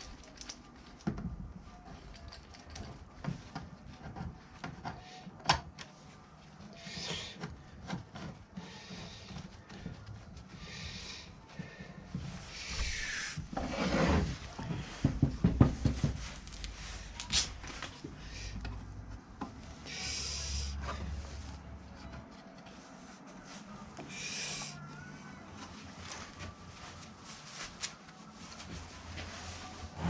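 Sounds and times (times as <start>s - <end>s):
rubbing and scraping strokes: 10.6s - 15.1s.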